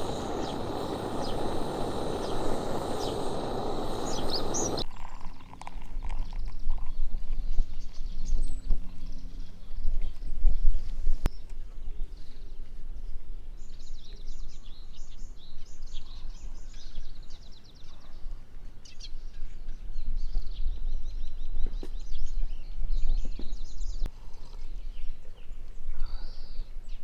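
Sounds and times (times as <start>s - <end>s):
birds singing fast trills: 0.0s - 4.8s.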